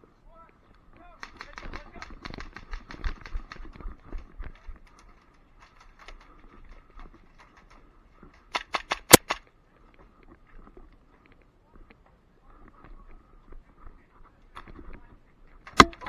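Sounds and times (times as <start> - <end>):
airsoft pistol shots: 8.6 - 9.4, 15.7 - 16.0.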